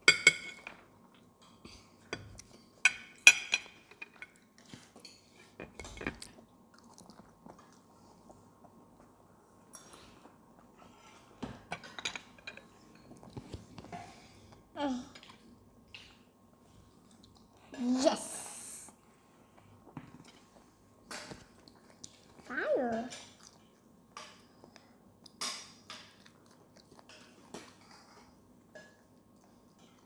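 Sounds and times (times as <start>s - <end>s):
children chewing crunchy food: 4.4s - 11.4s, 19.0s - 22.5s, 23.2s - 30.0s.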